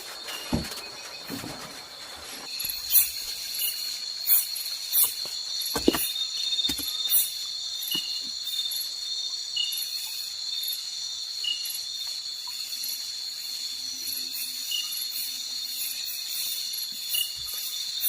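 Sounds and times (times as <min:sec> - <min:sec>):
insects droning: 0:00.0 - 0:18.0
sharp knocks and clicks: 0:05.7 - 0:06.9.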